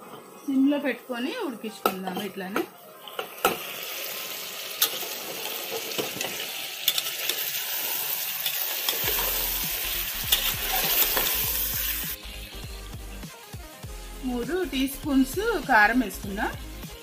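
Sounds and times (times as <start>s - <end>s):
chicken sizzling in a pot: 0.0s - 17.0s
metal spatula scraping a pot: 8.4s - 9.6s, 10.2s - 12.1s.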